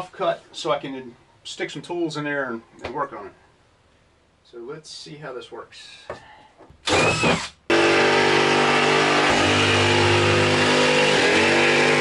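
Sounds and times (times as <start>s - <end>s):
power tool motor cutting: 6.8s - 12.0s.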